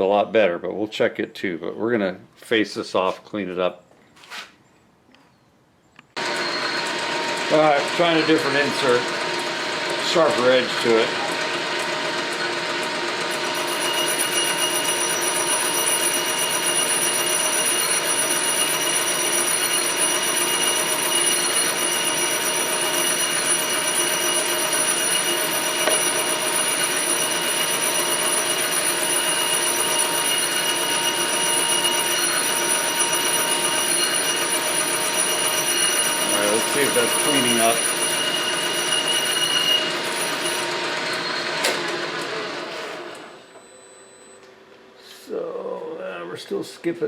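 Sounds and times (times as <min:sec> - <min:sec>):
high ringing whine: 0:06.2 - 0:11.3, 0:13.1 - 0:41.7, 0:43.3 - 0:44.7
metal lathe cutting: 0:06.2 - 0:43.3.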